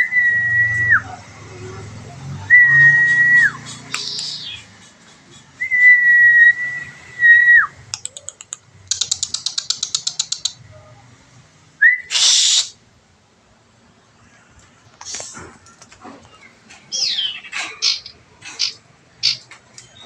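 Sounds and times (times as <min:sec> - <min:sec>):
bird harsh call: 0:12.0 - 0:12.8, 0:16.9 - 0:19.4.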